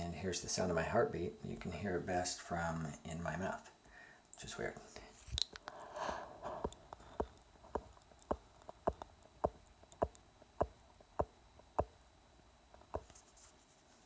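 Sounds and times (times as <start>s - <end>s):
mechanical heart valve clicking: 5.6s - 13.1s.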